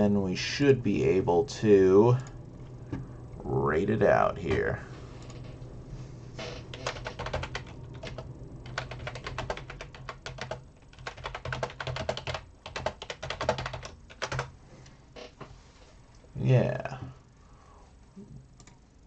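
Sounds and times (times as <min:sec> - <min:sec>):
low steady hum: 0:00.0 - 0:19.0
typing on computer keyboard: 0:06.7 - 0:14.5.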